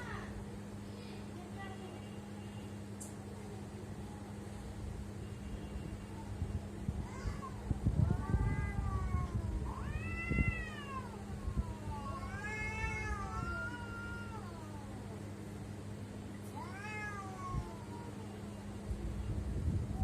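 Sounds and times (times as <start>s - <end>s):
steady low hum: 0.0s - 20.0s
cats meowing: 7.0s - 15.2s, 16.5s - 18.6s.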